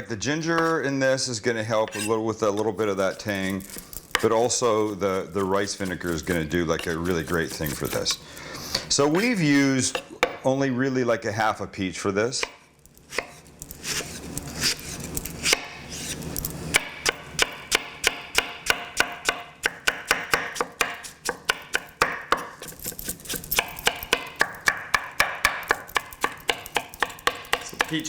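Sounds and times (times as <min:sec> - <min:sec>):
knife chopping on cutting board: 0:03.1 - 0:10.4, 0:12.4 - 0:28.0.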